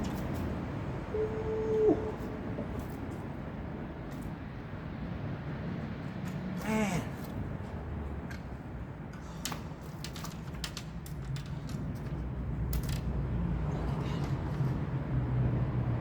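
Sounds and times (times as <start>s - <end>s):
sharp clicks and light knocks: 8.2s - 13.2s.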